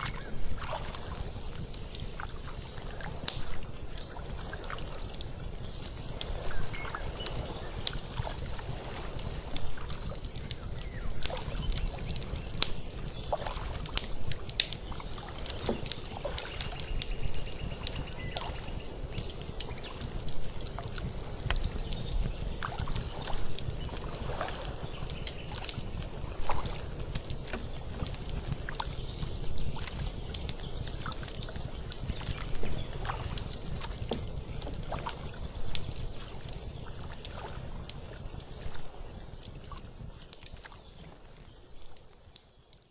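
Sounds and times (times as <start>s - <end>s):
lake water lapping: 0.0s - 39.0s
wood fire crackling: 0.0s - 42.9s.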